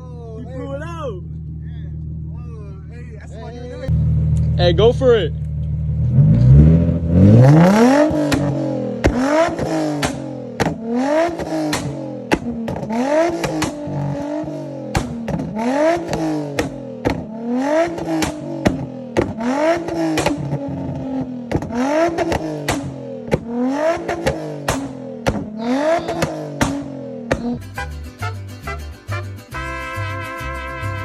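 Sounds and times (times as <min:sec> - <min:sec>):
car engine revving: 0:00.0 - 0:29.2
exhaust pops and crackles: 0:08.0 - 0:14.2, 0:14.9 - 0:27.7.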